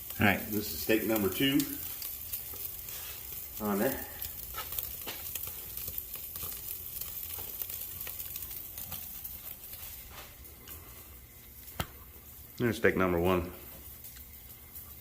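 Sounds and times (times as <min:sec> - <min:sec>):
steaks sizzling on a grill: 0:00.0 - 0:15.0
fat popping: 0:11.6 - 0:12.1.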